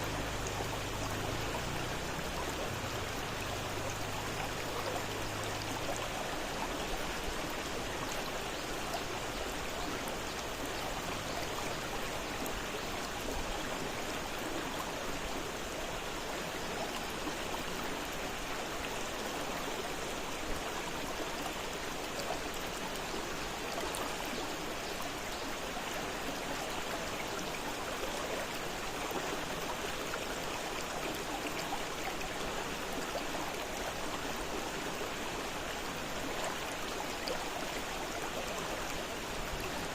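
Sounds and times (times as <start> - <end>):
fast-flowing river: 0.0 - 39.9.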